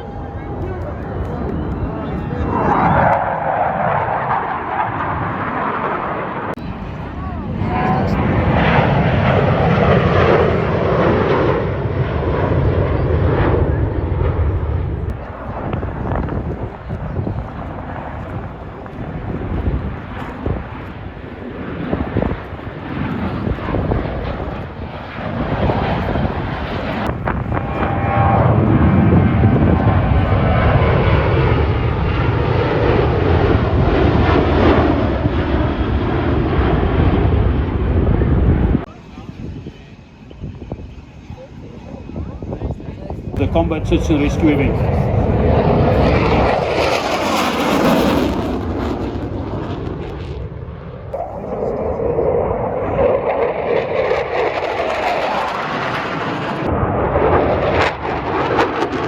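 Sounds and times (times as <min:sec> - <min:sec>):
aircraft engine flypast: 0:00.0 - 0:59.0.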